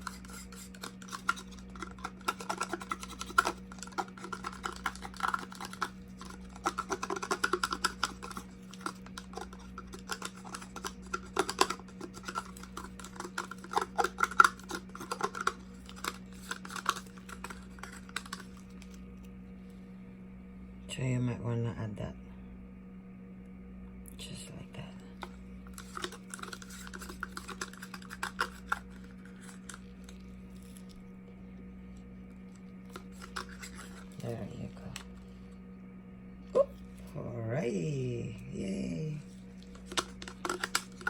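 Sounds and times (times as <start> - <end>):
plastic cups clicking and scraping: 0.0 - 19.0, 25.1 - 31.1, 31.9 - 35.4, 39.2 - 41.0
steady low hum: 0.0 - 41.0.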